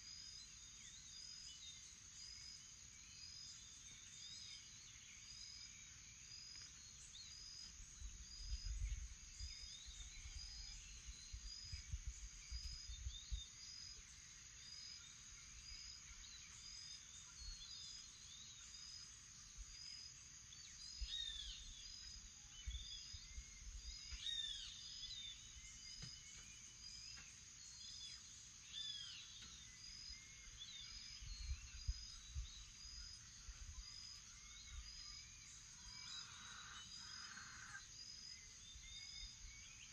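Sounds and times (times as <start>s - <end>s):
high insect drone: 0.1s - 39.9s
bird calls: 20.8s - 39.9s.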